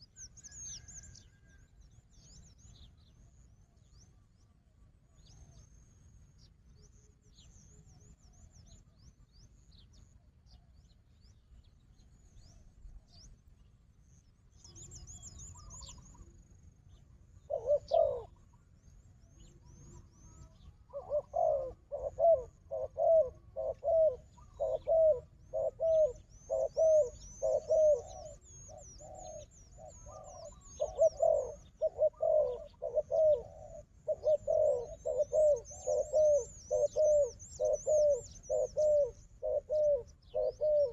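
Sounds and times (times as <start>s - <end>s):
small birds chirping: 5.2s - 40.9s
dove cooing: 17.4s - 18.5s, 19.4s - 40.9s.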